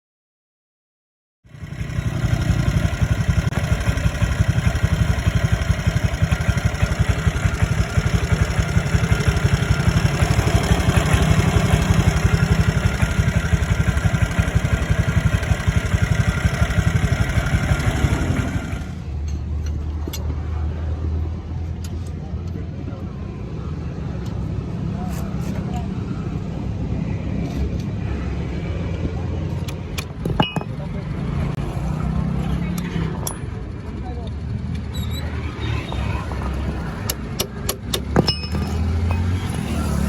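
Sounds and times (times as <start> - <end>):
scooter engine running: 1.5 - 19.1, 29.6 - 40.0.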